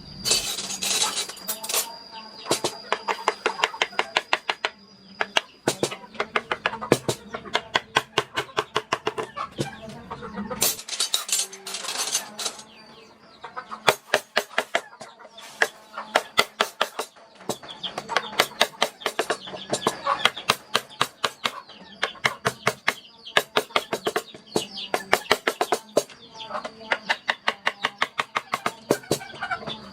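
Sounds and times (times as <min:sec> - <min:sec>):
mallet striking chisel: 0:02.5 - 0:09.3, 0:16.2 - 0:26.1.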